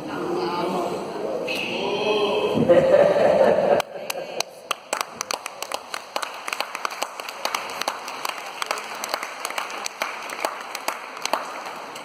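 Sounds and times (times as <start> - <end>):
audience clapping: 3.8 - 12.0.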